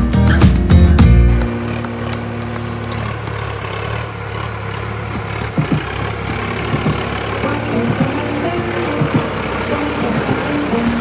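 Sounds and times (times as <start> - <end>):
tractor diesel engine running: 0.0 - 11.0
short knocks: 5.1 - 10.7.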